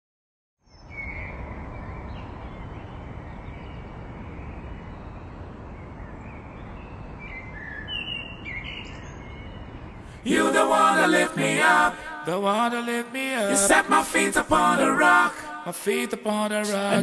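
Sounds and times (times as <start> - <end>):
outdoor background hiss: 0.6 - 17.0.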